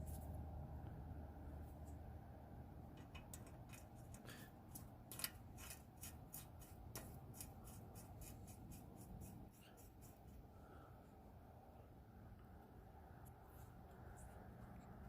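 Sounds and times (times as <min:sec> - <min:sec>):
small metallic clicks and rattling: 0:02.9 - 0:07.5.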